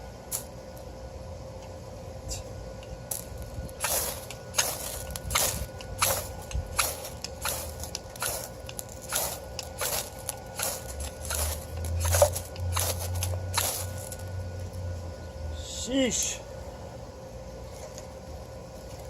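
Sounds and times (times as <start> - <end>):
striker scraping fire-starter rod: 3.1 - 14.2.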